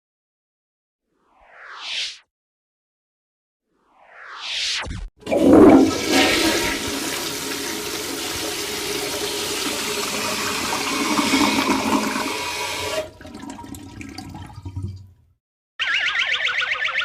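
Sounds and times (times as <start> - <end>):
flushing water rushing: 5.2 - 15.2.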